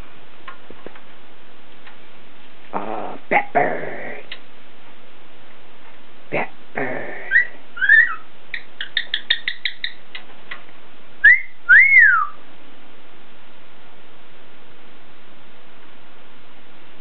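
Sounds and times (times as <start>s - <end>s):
cockatiel whistling and chirping: 7.4s - 10.0s, 11.2s - 12.4s.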